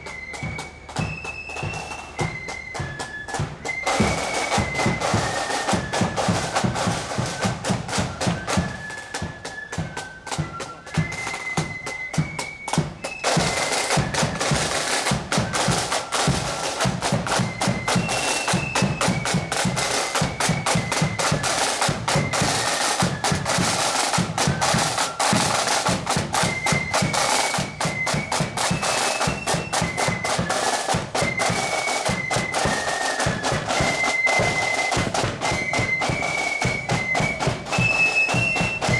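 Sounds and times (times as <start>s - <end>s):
snare drums rattling: 0.0s - 38.9s.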